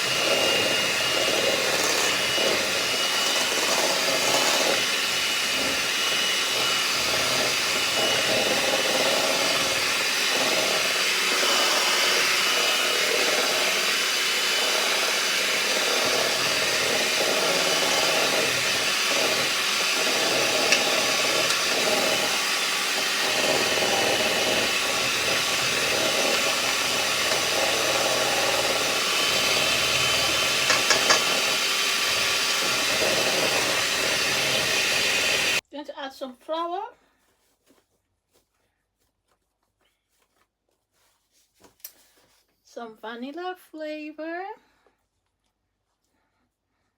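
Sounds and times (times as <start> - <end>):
electric mixer running: 0.0 - 35.6.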